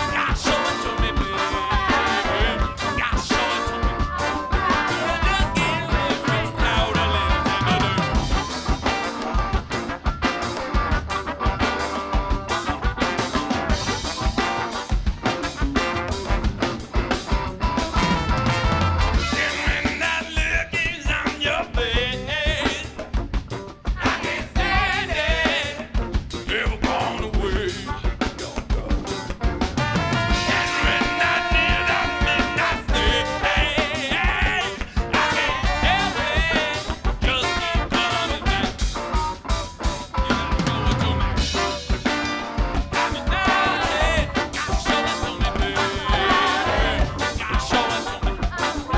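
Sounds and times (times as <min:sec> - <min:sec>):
drum kit beat: 0:00.0 - 0:48.9
funk band playing: 0:00.0 - 0:48.9
wavering lead line: 0:22.6 - 0:48.9.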